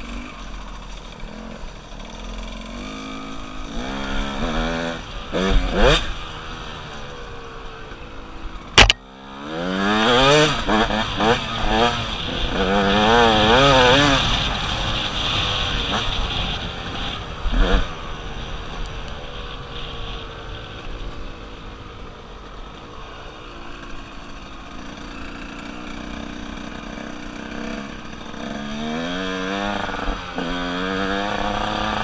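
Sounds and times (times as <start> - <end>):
loud thump: 8.8 - 9.0
dirt bike engine revving: 26.1 - 32.0.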